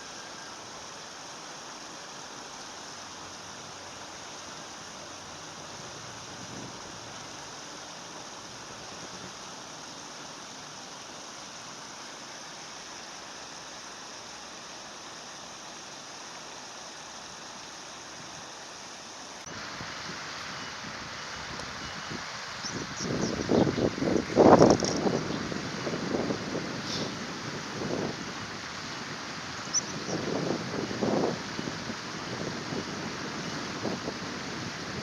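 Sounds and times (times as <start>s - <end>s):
stream flowing: 0.0s - 35.0s.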